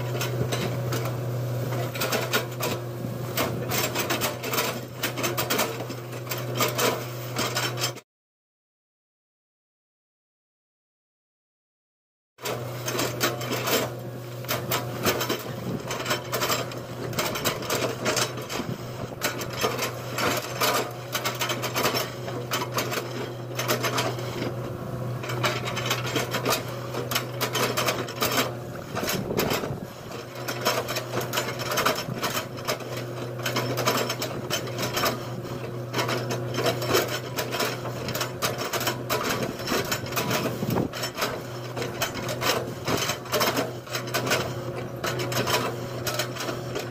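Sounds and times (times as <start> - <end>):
knocks scrapes and rattles: 1.7 - 8.0, 12.4 - 46.9
diesel engine drone: 12.4 - 46.8.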